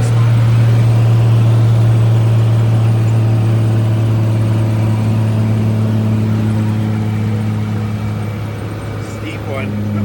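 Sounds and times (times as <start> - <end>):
diesel engine pulling under load: 0.0 - 10.0.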